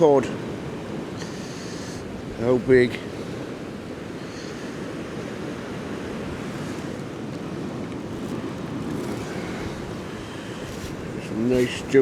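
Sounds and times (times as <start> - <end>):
wind buffeting microphone: 0.0 - 12.0
sea swell rushing against pier: 3.3 - 12.0.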